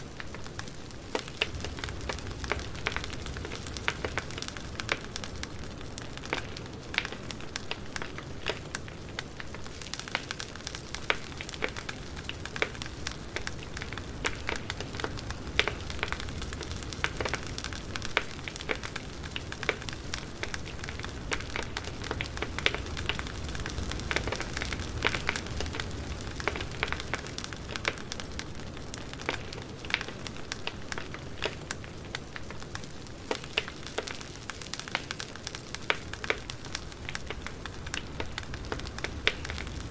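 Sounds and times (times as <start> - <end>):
campfire crackling and popping: 0.0 - 39.9
low rumble of burning: 0.0 - 39.9.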